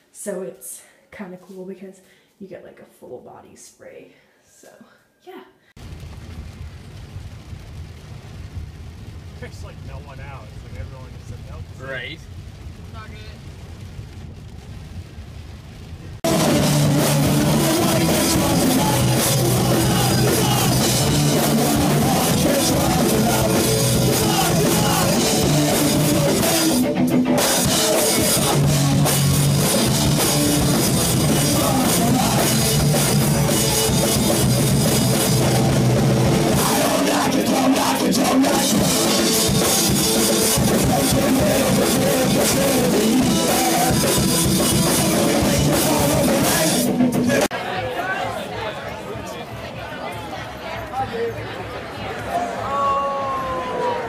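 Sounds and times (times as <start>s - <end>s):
punk rock band playing: 16.2s - 47.5s
person singing: 16.3s - 33.9s, 36.3s - 39.3s, 40.6s - 47.5s.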